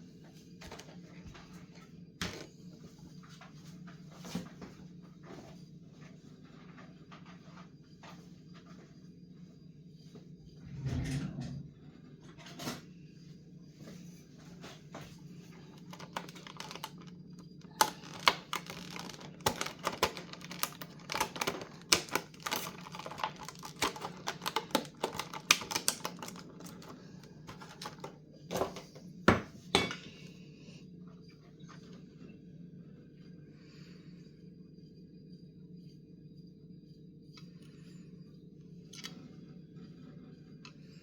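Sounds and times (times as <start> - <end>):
steady low hum: 0.0 - 24.8, 26.1 - 41.0
small plastic parts clicking: 17.7 - 26.9.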